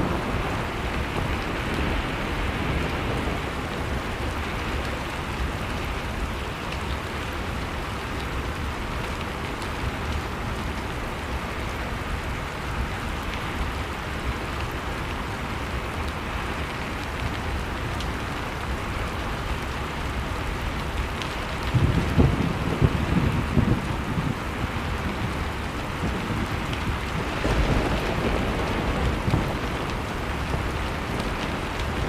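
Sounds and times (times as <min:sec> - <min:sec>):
wood fire crackling: 0:23.4 - 0:32.0.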